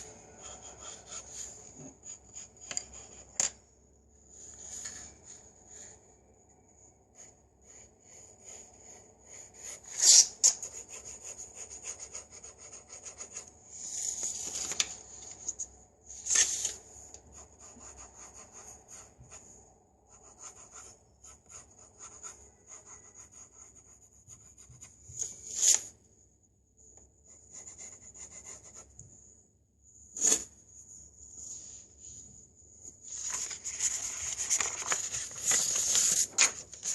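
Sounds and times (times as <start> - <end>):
pencil scratching on paper: 0.0 - 3.4, 7.1 - 13.5, 17.3 - 25.0, 27.2 - 28.9.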